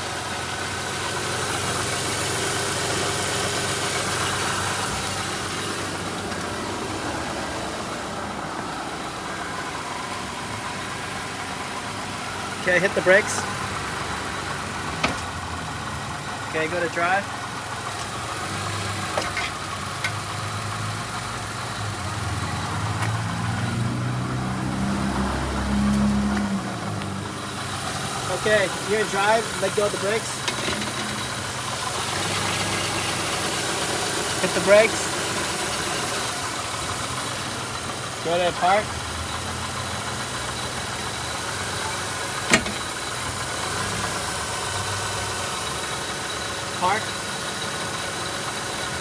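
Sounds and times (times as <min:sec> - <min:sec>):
car engine idling: 0:00.0 - 0:49.0
transmission clunk: 0:15.0 - 0:15.4, 0:30.3 - 0:31.5, 0:42.4 - 0:43.3.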